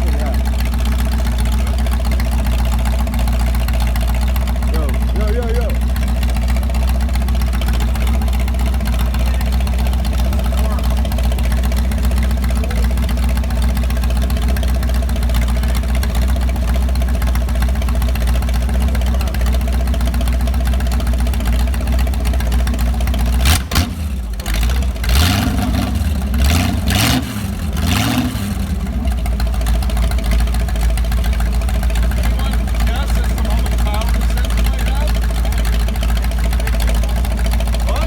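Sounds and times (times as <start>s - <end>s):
car engine idling and revving: 0.0s - 38.0s.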